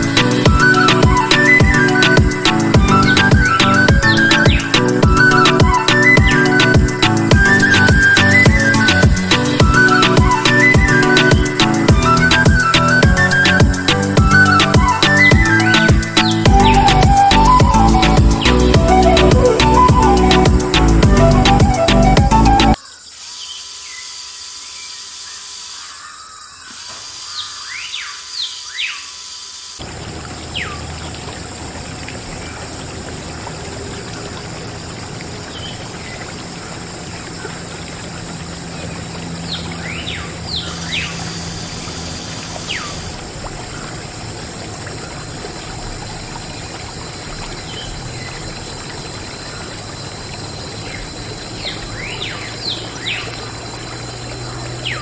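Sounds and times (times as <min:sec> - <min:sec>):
birds chirping: 0:00.0 - 0:20.7, 0:21.4 - 0:29.3, 0:35.4 - 0:44.0, 0:50.6 - 0:55.0
water pouring from pipe: 0:29.2 - 0:55.0.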